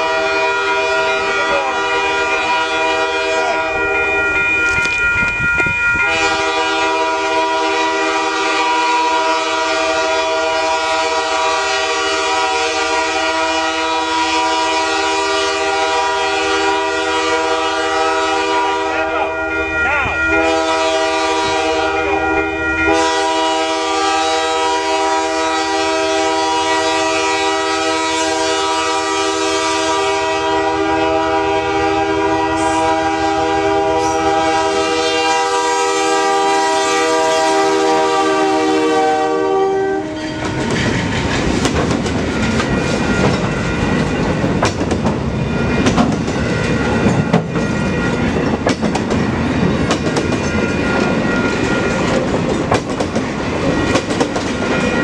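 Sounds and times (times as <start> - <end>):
locomotive horn chord: 0.0 - 4.8, 6.0 - 40.6
train wheels clattering over rail joints: 40.3 - 55.0.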